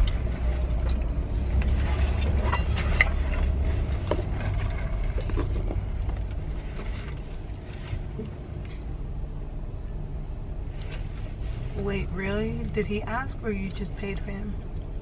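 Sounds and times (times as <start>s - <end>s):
faint clicks and rustles: 0.0s - 8.9s, 10.6s - 13.0s
car engine hum inside cabin: 0.0s - 15.0s.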